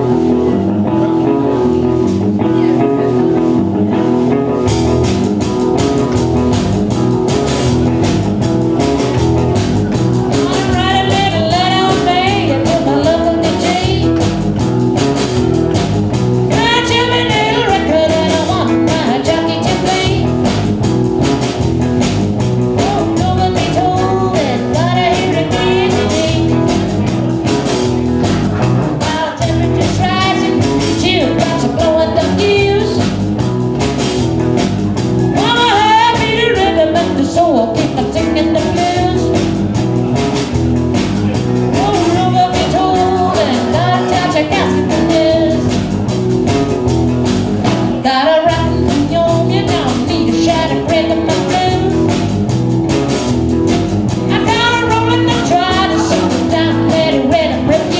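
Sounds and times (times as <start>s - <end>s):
live blues-rock band: 0.0s - 57.9s
person singing: 9.0s - 20.7s, 22.6s - 33.2s, 35.0s - 40.2s, 41.3s - 46.0s, 48.0s - 52.4s, 54.1s - 57.9s.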